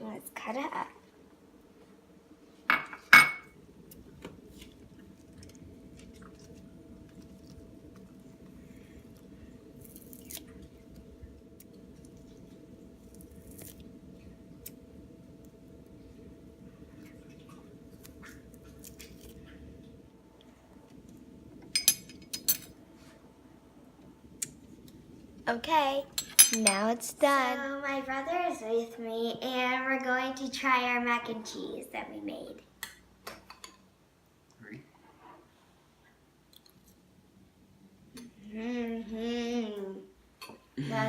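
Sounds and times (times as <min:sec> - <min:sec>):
leaves being snipped: 0:09.8 - 0:10.5, 0:13.2 - 0:13.8.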